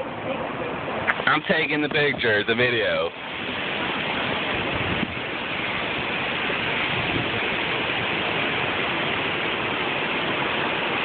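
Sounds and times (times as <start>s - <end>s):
heavy rain: 0.0s - 11.0s
wind: 0.0s - 11.0s.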